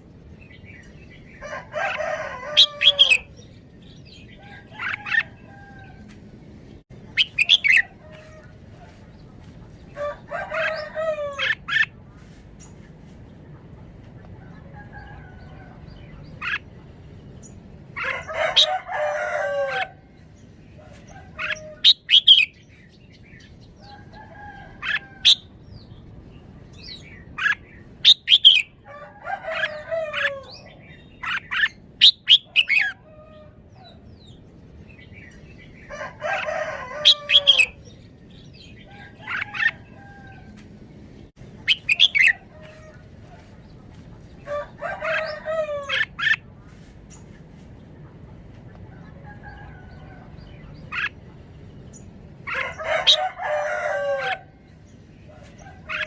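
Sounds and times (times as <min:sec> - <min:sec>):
rooster crowing: 0:01.4 - 0:03.3, 0:10.0 - 0:11.6, 0:18.0 - 0:20.0, 0:28.8 - 0:30.7, 0:35.9 - 0:37.8, 0:44.4 - 0:46.1, 0:52.5 - 0:54.6
bird singing sharp phrases: 0:07.0 - 0:08.0.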